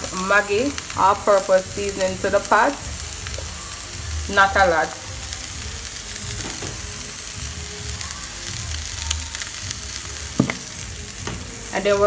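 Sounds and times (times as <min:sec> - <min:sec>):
vegetables sizzling in oil: 0:00.0 - 0:12.0
sharp knock: 0:10.4 - 0:10.6.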